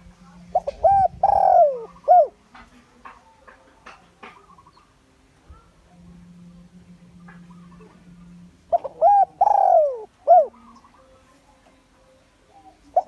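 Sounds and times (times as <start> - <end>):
dove cooing: 0.0 - 2.7, 5.6 - 13.0.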